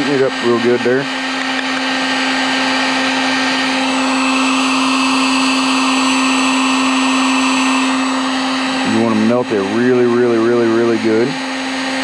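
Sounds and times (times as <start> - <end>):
heat gun fan humming: 0.0 - 12.0
rushing blast of hot air: 1.0 - 9.7.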